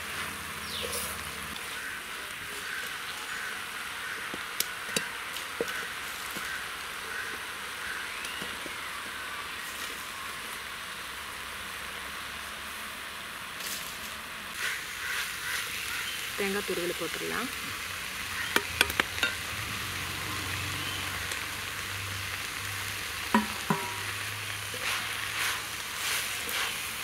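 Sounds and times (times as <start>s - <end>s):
leaves sizzling in a pot: 0.0s - 27.0s.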